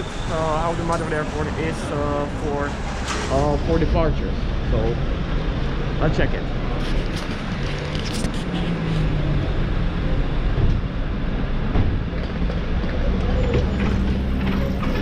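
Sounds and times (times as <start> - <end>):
vehicle rumble from inside: 4.3 - 15.0.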